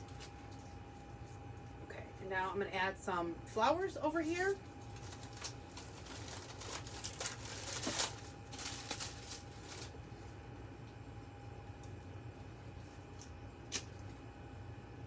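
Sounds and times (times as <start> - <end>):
artificial flowers rustling: 4.2 - 10.0.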